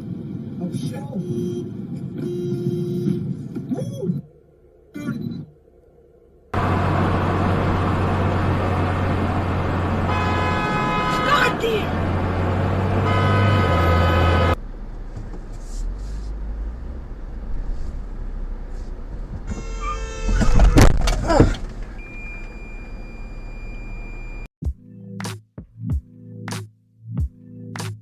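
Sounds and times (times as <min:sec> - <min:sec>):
road noise: 0:00.0 - 0:04.9, 0:05.5 - 0:24.5
car horn: 0:09.7 - 0:14.6, 0:19.5 - 0:20.9.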